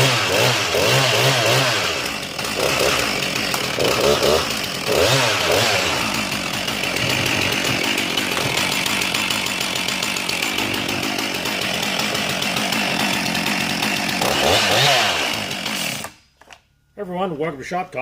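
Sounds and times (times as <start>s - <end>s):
chainsaw engine running: 0.0s - 16.2s.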